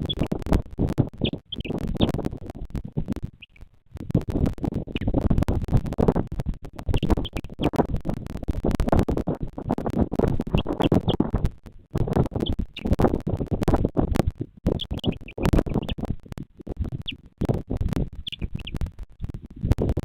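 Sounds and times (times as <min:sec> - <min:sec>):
crackling and scratching on microphone: 0:00.0 - 0:20.0
bird chirping: 0:00.1 - 0:00.3, 0:01.2 - 0:02.2, 0:03.4 - 0:03.6, 0:06.9 - 0:07.8, 0:14.7 - 0:16.1, 0:18.2 - 0:18.8.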